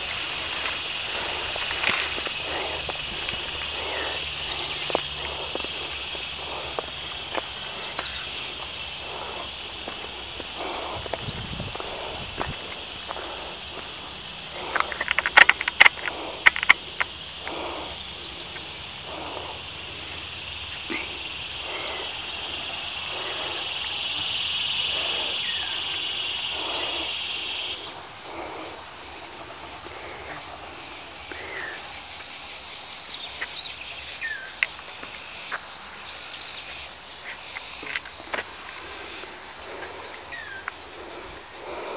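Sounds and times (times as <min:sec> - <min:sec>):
twigs snapping: 0:00.0 - 0:04.0, 0:14.6 - 0:17.1
footsteps on forest floor: 0:00.0 - 0:19.6, 0:37.2 - 0:41.9.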